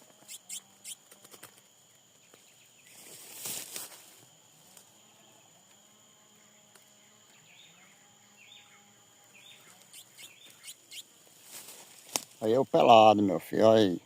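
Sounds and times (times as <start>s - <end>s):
high insect-like tone: 0.0s - 14.0s
small bird chirping: 0.2s - 1.1s, 9.4s - 11.2s.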